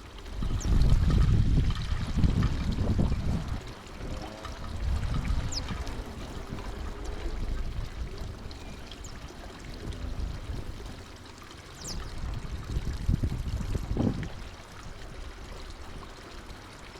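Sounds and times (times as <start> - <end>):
small birds chirping: 0.0 - 1.2, 3.4 - 12.4
rush like running water: 0.0 - 16.9.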